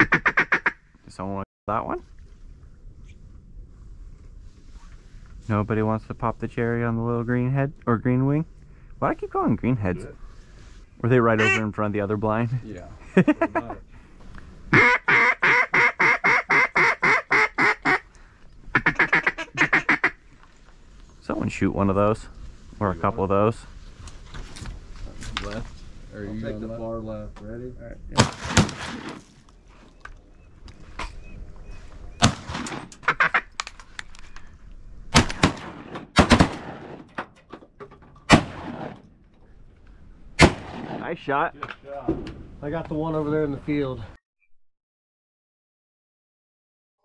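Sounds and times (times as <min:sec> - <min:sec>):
duck quacking: 0:00.0 - 0:00.8, 0:11.3 - 0:11.7, 0:14.7 - 0:18.0, 0:18.7 - 0:20.2, 0:33.0 - 0:33.5
shotgun shots: 0:28.2 - 0:29.3, 0:32.2 - 0:33.0, 0:35.1 - 0:37.1, 0:38.3 - 0:39.0, 0:40.4 - 0:41.2.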